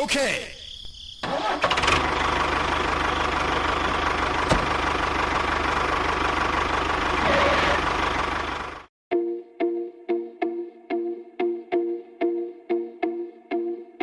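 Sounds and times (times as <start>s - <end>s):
engine idling with rapid knock: 1.4s - 8.9s.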